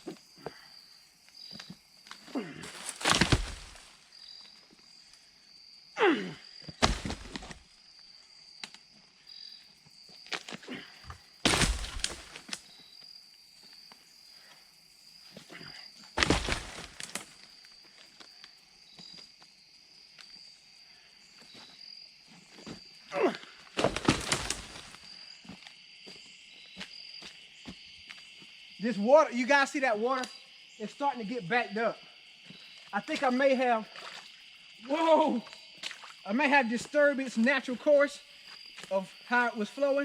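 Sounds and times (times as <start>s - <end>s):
insect trill: 0.0s - 40.0s
wood crashing onto a pile: 2.6s - 3.9s, 6.8s - 7.6s, 11.4s - 12.6s, 16.2s - 17.4s, 23.8s - 25.0s.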